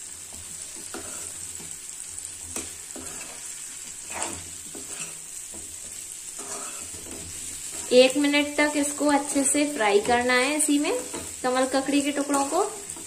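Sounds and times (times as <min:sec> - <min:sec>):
food sizzling in hot oil: 0:00.0 - 0:13.0
spatula scraping and knocking a pan: 0:00.3 - 0:01.8, 0:02.4 - 0:08.3, 0:09.0 - 0:13.0.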